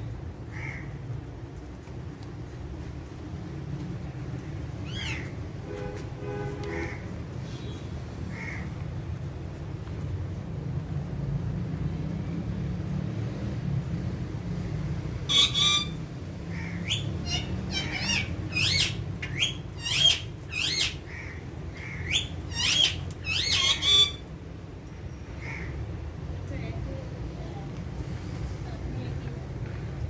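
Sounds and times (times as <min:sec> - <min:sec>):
parakeets squawking: 0:04.8 - 0:05.4, 0:15.3 - 0:24.3.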